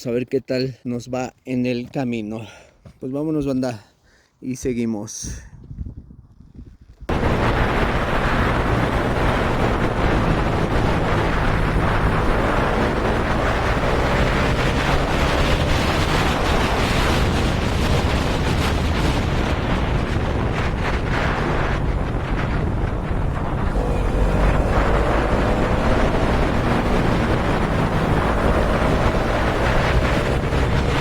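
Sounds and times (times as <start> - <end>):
wind buffeting microphone: 5.2 - 31.0
motorcycle engine running: 7.1 - 31.0.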